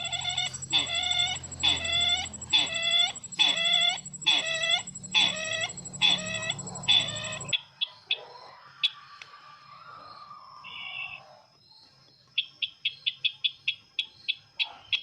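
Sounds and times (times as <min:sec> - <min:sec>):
bird clucking call: 0:00.0 - 0:07.5.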